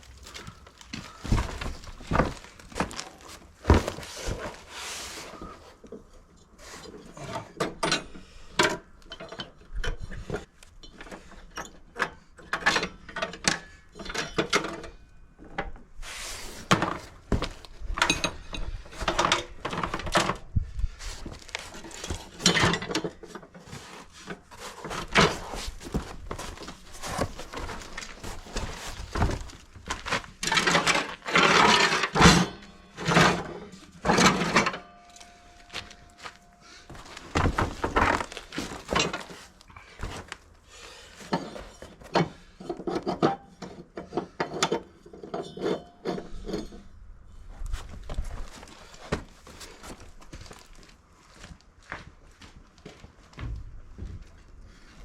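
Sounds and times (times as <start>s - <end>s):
hand tools knocking and scraping: 0.1s - 5.6s, 16.5s - 20.4s, 21.1s - 40.4s.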